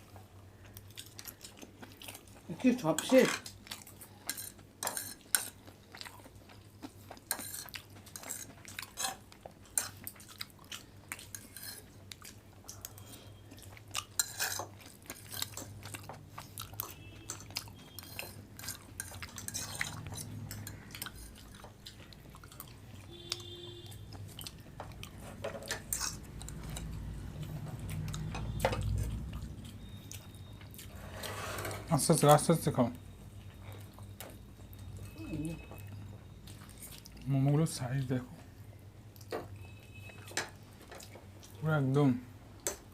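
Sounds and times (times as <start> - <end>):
chewing: 0.0 - 2.6, 3.4 - 31.4, 33.3 - 38.5, 39.1 - 41.6
cutlery scraping on plates: 4.3 - 5.6, 7.3 - 10.0, 11.2 - 11.9, 14.2 - 15.7, 17.2 - 21.4, 25.2 - 26.9, 31.0 - 31.9.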